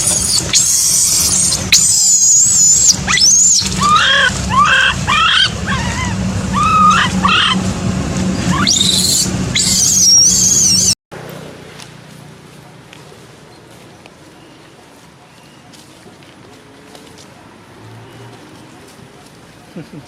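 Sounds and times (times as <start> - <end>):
monkey screaming: 0.0 - 7.6, 8.4 - 11.0.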